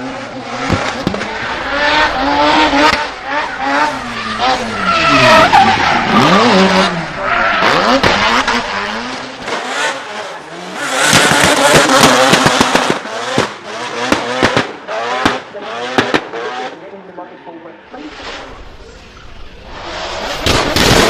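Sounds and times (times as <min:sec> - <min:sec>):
car engine revving: 0:00.0 - 0:16.8
tyres screeching: 0:01.2 - 0:09.2.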